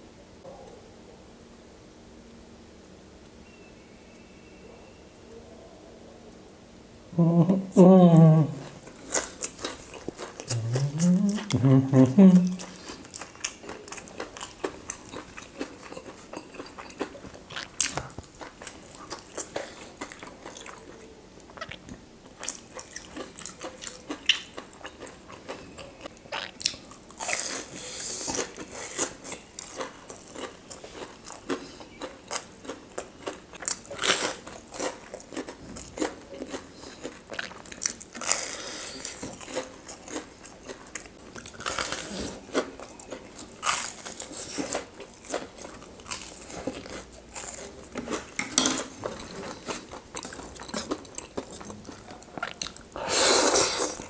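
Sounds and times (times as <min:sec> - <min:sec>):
chewing crunchy food: 0:08.6 - 0:54.0.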